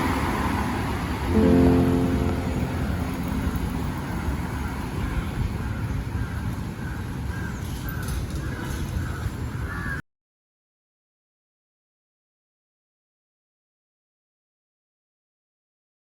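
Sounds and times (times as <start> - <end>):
traffic rumble: 0.0 - 9.4.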